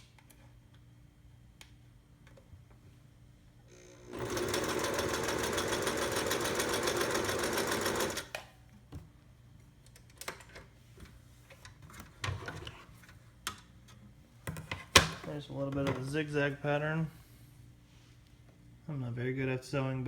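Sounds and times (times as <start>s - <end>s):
sewing machine stitching: 4.1s - 8.3s.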